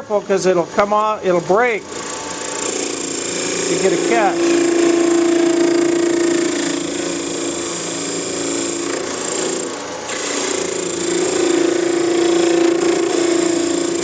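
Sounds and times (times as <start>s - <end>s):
tool scraping spinning wood: 0.8s - 14.0s
wood lathe humming and whining: 1.2s - 14.0s.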